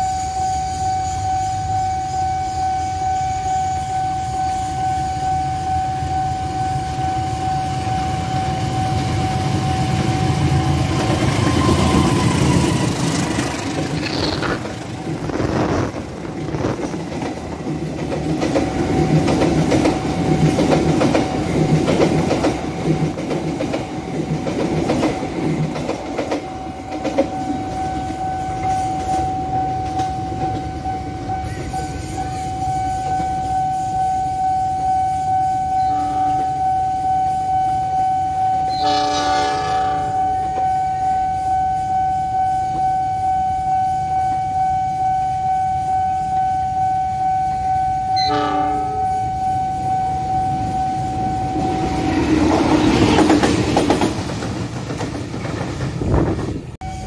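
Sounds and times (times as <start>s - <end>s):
locomotive rumble: 7.9s - 22.6s
wheels clicking over rail joints: 12.6s - 30.7s
level crossing alarm tone: 26.7s - 54.0s.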